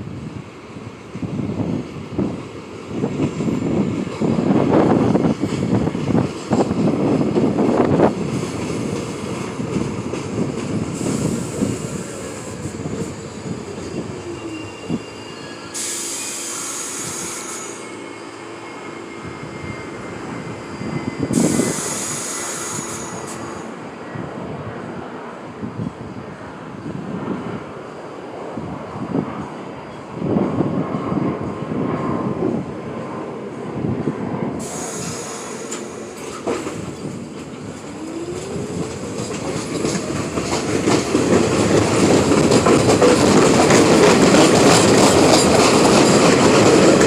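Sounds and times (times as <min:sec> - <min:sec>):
subway train running on rails: 0:00.0 - 0:47.0
wheels squealing: 0:11.0 - 0:23.6
air hissing: 0:15.6 - 0:17.8, 0:21.2 - 0:23.7, 0:34.6 - 0:36.9.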